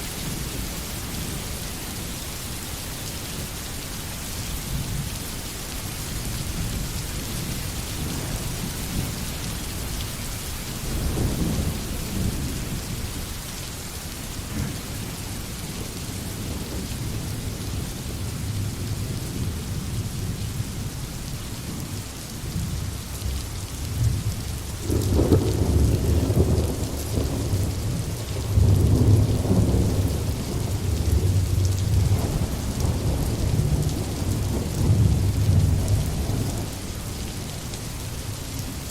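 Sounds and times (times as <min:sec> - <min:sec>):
rolling thunder: 0:22.5 - 0:36.8.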